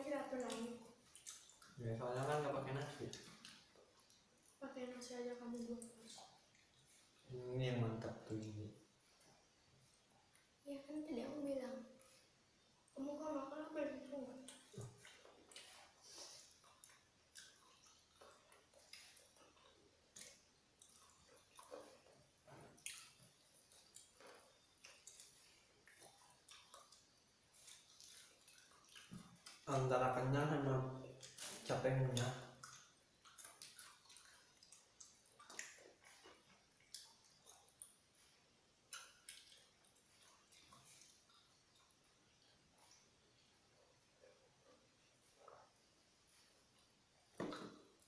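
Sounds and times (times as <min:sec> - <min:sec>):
room hiss: 0:00.0 - 0:48.0
chewing fried chicken: 0:00.2 - 0:07.4, 0:14.4 - 0:29.9, 0:31.0 - 0:45.8.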